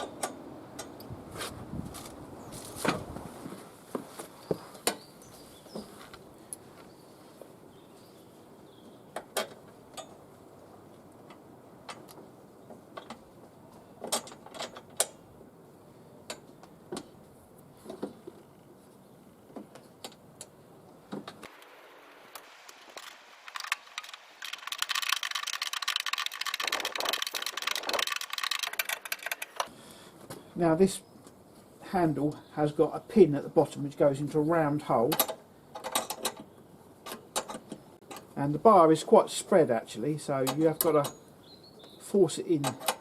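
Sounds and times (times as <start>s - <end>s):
spanner ratchet clicking: 24.0s - 29.7s
metal clicks and clinks: 24.4s - 29.7s.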